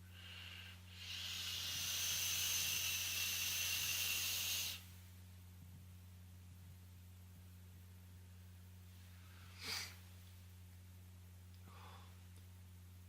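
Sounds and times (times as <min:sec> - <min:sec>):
e-cigarette vaping hiss: 0:00.0 - 0:04.9
faint electrical hum: 0:00.0 - 0:13.0.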